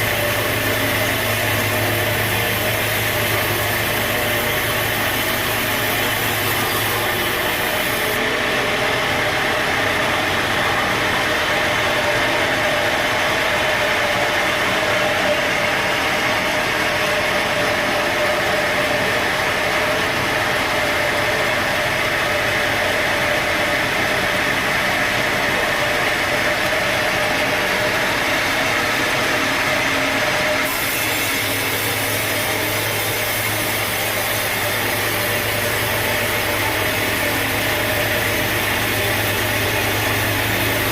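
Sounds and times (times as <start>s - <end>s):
sawmill machinery drone: 0.0s - 40.9s.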